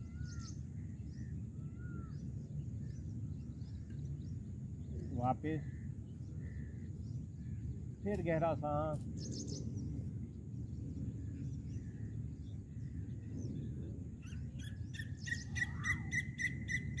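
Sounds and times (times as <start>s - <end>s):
low steady rumble: 0.0s - 17.0s
bird calling: 14.6s - 17.0s.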